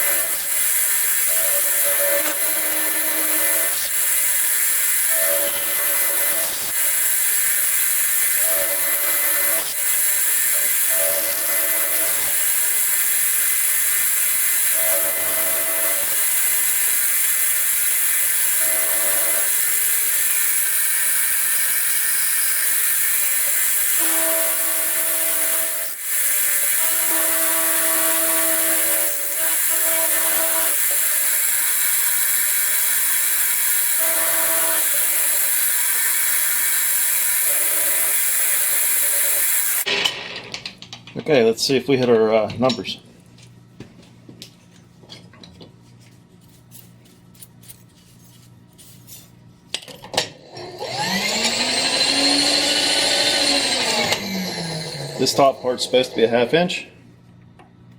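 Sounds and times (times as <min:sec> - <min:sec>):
milling machine cutting: 0:00.0 - 0:39.9, 0:50.5 - 0:56.6.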